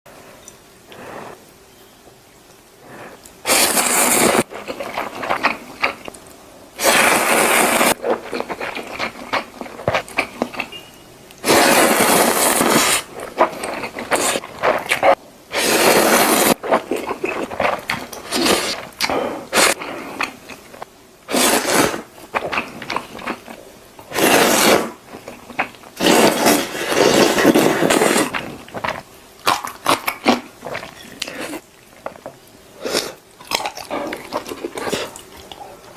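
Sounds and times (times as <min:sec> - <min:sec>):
crunchy food chewing: 0:07.2 - 0:10.8, 0:11.4 - 0:32.3, 0:32.9 - 0:35.9.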